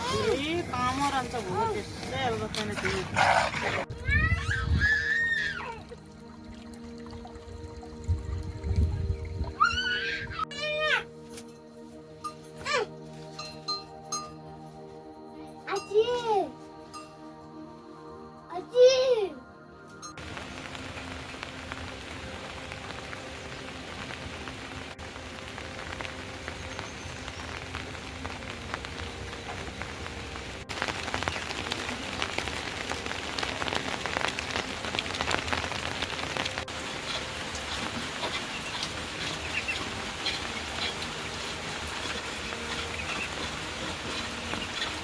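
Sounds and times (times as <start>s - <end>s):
rain patter: 0.0s - 11.0s, 20.2s - 45.0s.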